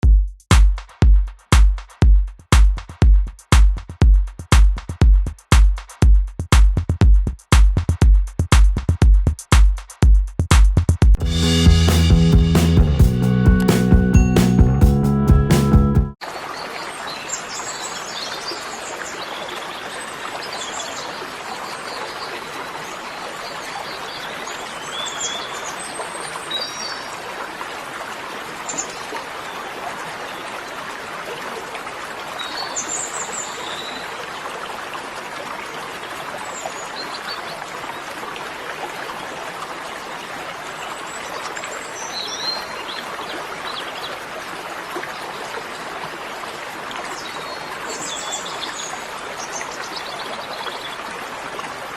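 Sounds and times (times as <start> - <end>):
stream water rushing: 16.2 - 51.9.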